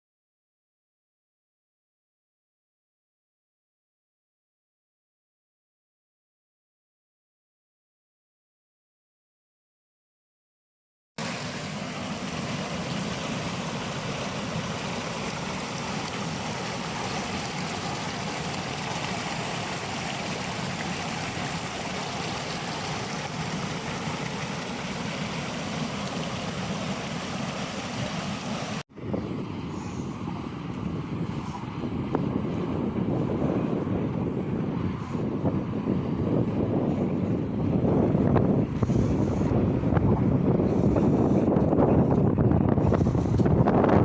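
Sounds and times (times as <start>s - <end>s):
rushing water: 11.2s - 28.8s.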